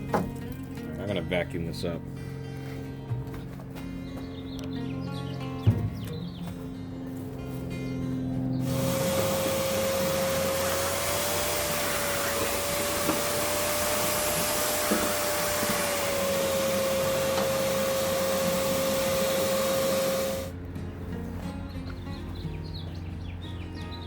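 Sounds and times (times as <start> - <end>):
vacuum cleaner running: 8.6 - 20.6.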